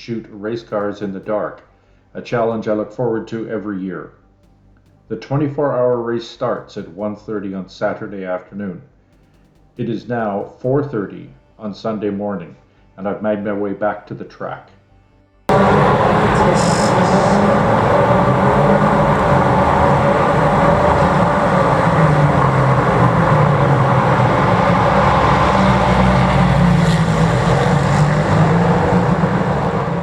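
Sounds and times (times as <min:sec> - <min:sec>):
race car engines droning: 0:15.5 - 0:30.0.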